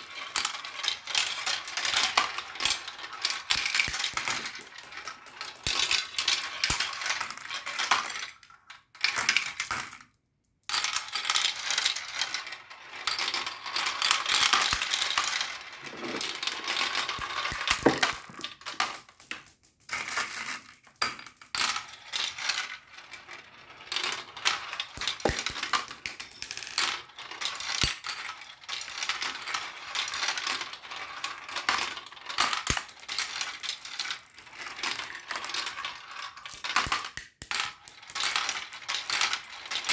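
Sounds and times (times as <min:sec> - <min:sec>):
marbles rolling and clattering: 0:00.1 - 0:08.3, 0:10.7 - 0:39.9.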